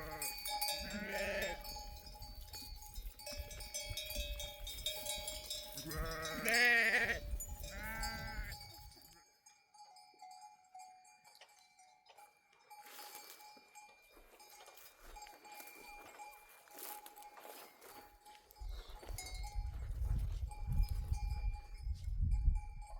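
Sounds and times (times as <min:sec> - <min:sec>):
sheep bleating: 0:00.0 - 0:01.7, 0:05.8 - 0:08.6
flock bells ringing faintly: 0:00.0 - 0:22.9.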